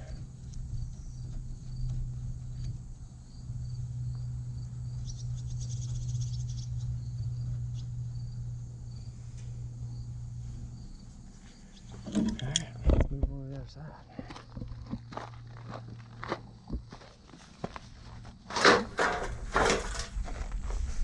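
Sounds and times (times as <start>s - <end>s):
loud insect trill: 0.0s - 12.9s
crickets chirping: 0.0s - 21.0s
steady low hum: 0.0s - 21.0s.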